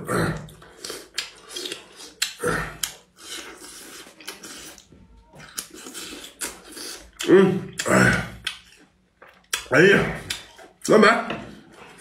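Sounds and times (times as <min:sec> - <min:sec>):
person slurping food: 0:00.3 - 0:04.9
chewing with wet mouth clicks: 0:00.4 - 0:10.9.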